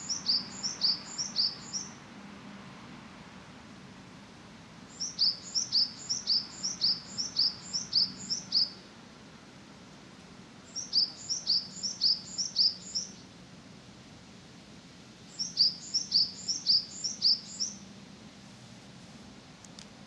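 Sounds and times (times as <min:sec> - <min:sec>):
songbird singing high notes: 0:00.0 - 0:02.0, 0:04.9 - 0:08.8, 0:10.7 - 0:13.2, 0:15.3 - 0:17.8.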